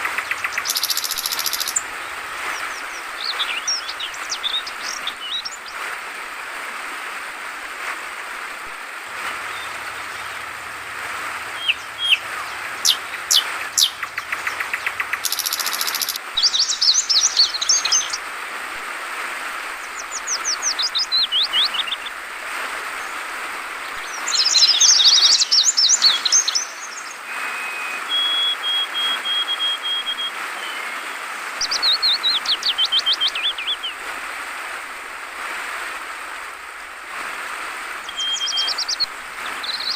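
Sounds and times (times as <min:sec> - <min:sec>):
trickling water: 0:00.0 - 0:07.4, 0:08.0 - 0:27.3
bird chirping and trilling: 0:00.2 - 0:01.8, 0:11.5 - 0:18.2, 0:24.0 - 0:27.1, 0:38.1 - 0:39.9.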